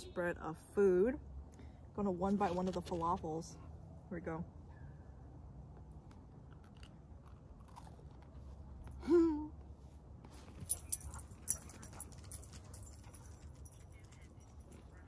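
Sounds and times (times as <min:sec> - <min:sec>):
crunchy food chewing: 0:06.0 - 0:09.0.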